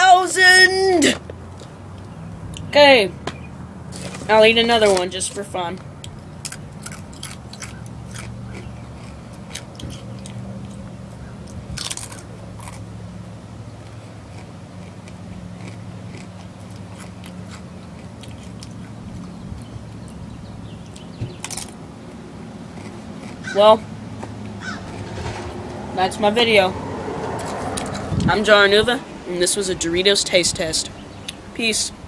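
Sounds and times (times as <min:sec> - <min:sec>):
crunching and chewing chips: 0:06.0 - 0:25.5.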